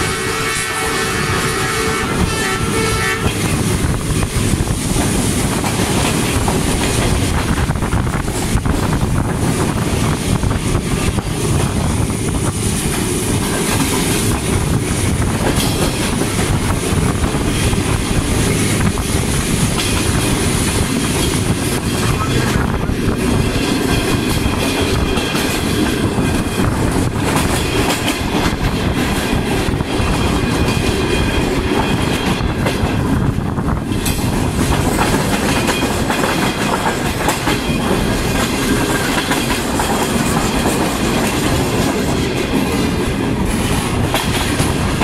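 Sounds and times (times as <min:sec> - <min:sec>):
train horn blast: 0:00.0 - 0:03.6
rushing wind: 0:00.0 - 0:45.0
train wheels rumbling on rail: 0:00.0 - 0:45.0.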